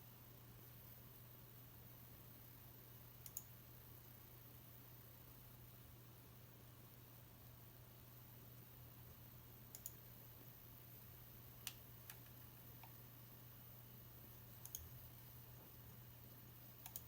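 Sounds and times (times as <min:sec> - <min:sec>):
faint sharp clicks: 0:03.2 - 0:03.5, 0:09.7 - 0:10.0.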